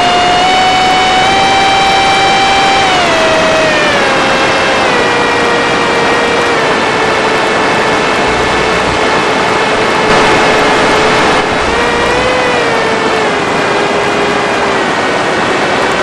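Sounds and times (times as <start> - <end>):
model plane motor whine: 0.0 - 16.0
loud rushing noise: 7.5 - 13.7.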